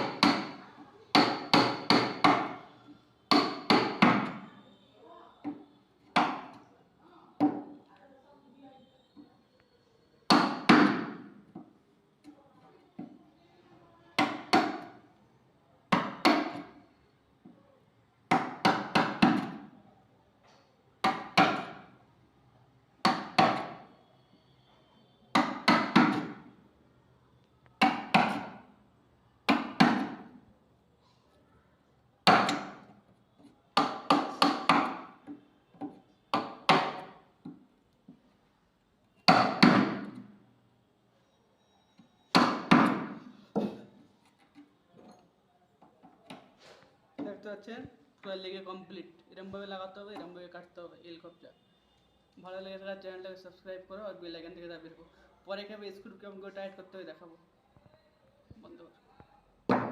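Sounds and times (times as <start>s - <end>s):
hammer striking wood: 0.0s - 2.6s, 3.3s - 4.4s, 5.5s - 6.6s, 10.3s - 11.4s, 14.2s - 14.9s, 15.9s - 16.7s, 18.3s - 19.7s, 21.0s - 21.8s, 23.0s - 23.9s, 25.3s - 26.5s, 27.8s - 28.7s, 29.5s - 30.4s, 32.2s - 32.9s, 33.8s - 37.6s, 39.2s - 40.4s, 42.3s - 43.9s.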